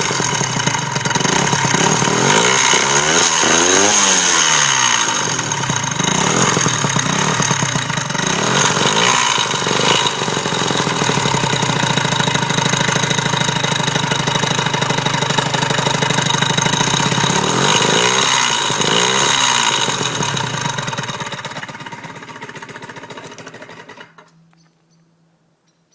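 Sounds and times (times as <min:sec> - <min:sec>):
engine rattle: 0:00.0 - 0:24.4
scooter engine running: 0:00.0 - 0:24.4.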